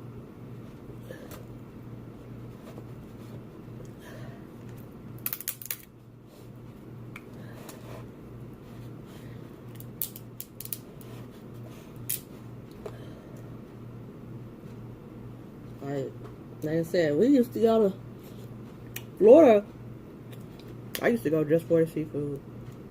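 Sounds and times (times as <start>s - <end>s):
shells cracking by hand: 5.2s - 5.9s, 9.7s - 10.8s.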